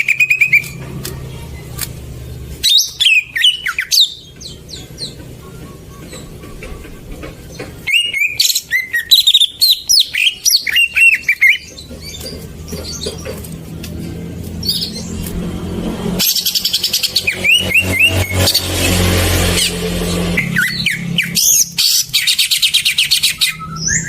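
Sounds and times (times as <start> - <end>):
bird singing chirps and whistles: 2.6 - 13.1, 16.2 - 24.0.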